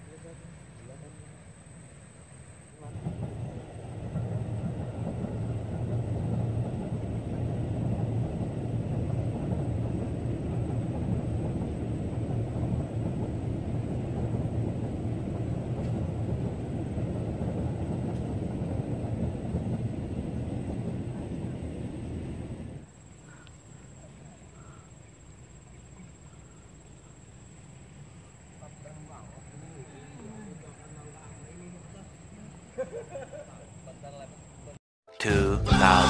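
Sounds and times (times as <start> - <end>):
train rumbling over bridge: 2.3 - 23.2, 35.2 - 36.0.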